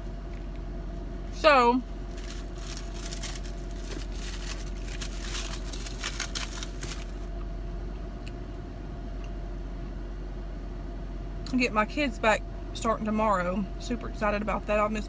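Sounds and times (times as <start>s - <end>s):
car interior hum: 0.0s - 7.4s
chewing crunchy pastry: 2.0s - 7.3s.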